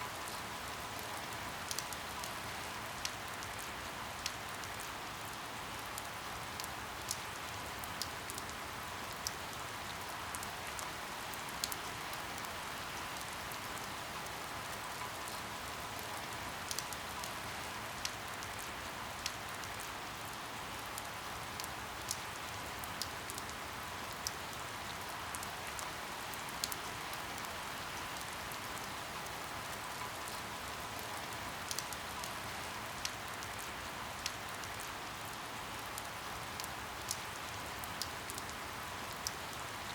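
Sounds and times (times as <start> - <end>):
steady rain falling: 0.0 - 39.9
raindrops ticking: 31.0 - 32.4.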